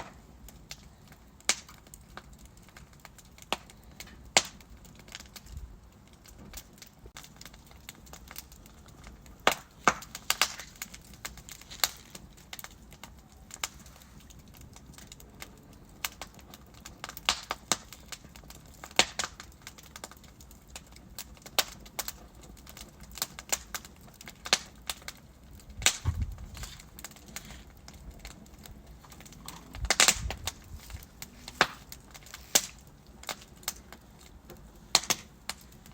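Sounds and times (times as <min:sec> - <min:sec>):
logs crackling and popping: 0:00.0 - 0:35.9
fire hissing: 0:07.1 - 0:19.9, 0:23.1 - 0:35.9.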